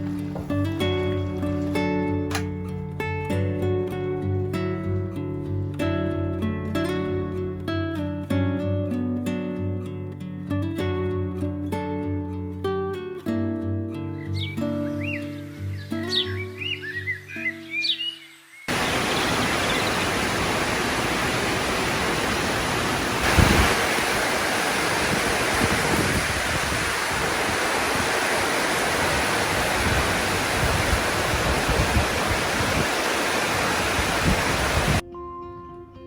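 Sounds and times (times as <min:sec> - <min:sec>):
heavy rain pouring: 0:18.7 - 0:35.0.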